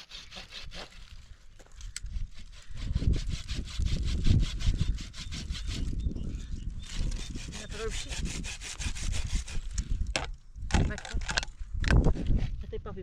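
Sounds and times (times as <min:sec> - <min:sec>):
hand saw cutting wood: 0:00.0 - 0:06.0, 0:06.8 - 0:10.3.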